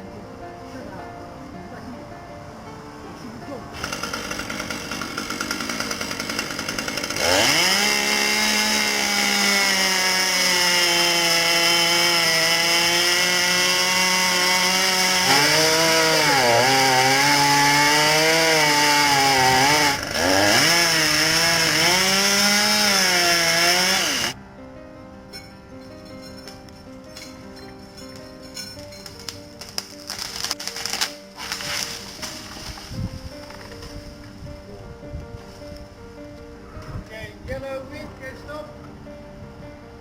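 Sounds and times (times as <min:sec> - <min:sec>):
chainsaw revving and cutting wood: 0:03.8 - 0:24.4, 0:29.7 - 0:32.8.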